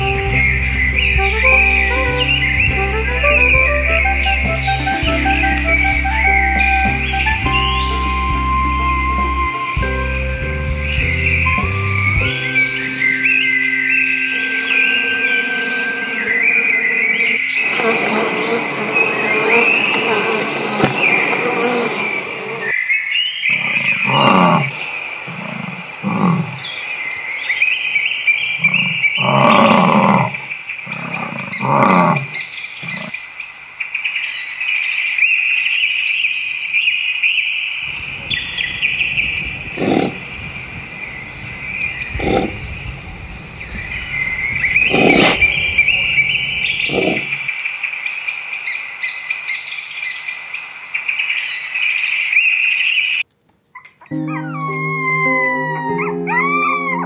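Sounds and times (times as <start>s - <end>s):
high-pitched chorus: 0.0s - 20.4s, 54.1s - 57.0s
large animal roaring and growling: 14.7s - 22.7s, 23.5s - 26.8s, 28.5s - 33.1s, 39.4s - 40.3s, 42.0s - 42.8s, 44.2s - 47.5s.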